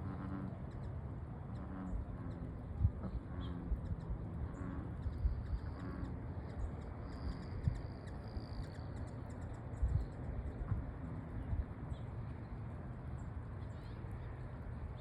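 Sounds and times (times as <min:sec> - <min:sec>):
low rumbling thumps: 0:09.8 - 0:11.9.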